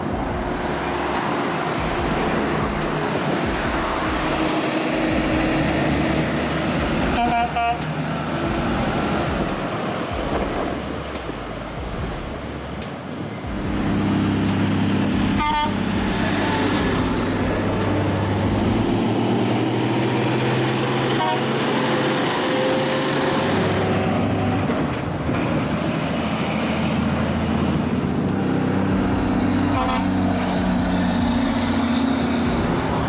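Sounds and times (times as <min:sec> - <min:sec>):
heavy vehicle engine running: 0:00.0 - 0:33.0.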